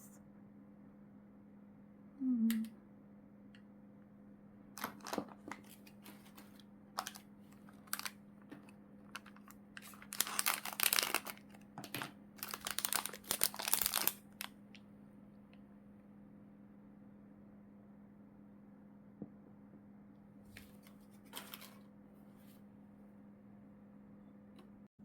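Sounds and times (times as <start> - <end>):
plastic packaging crinkling: 4.8 - 14.6, 21.2 - 21.8.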